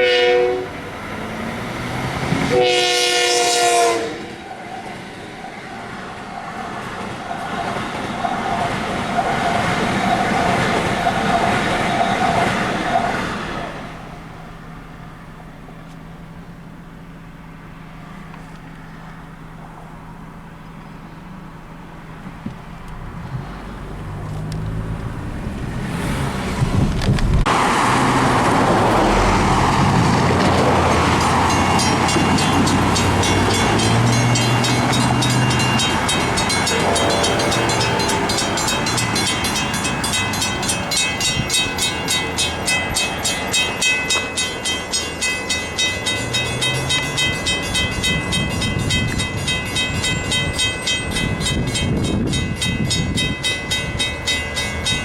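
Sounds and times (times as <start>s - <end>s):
train rumbling past: 0.0s - 55.0s
crossing warning bell ringing: 7.0s - 15.8s, 28.7s - 55.0s
train engine running: 27.0s - 55.0s.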